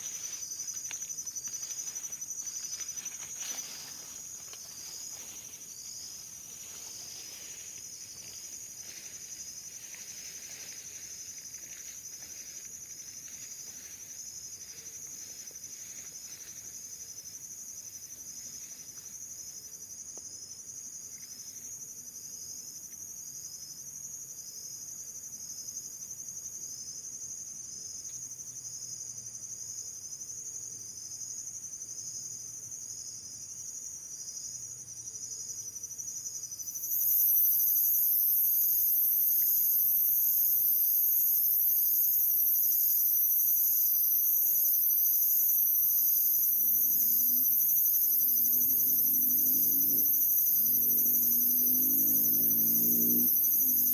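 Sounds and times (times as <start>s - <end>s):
insects buzzing: 0.0s - 27.0s, 27.8s - 53.9s
short insect chirp: 36.2s - 53.9s.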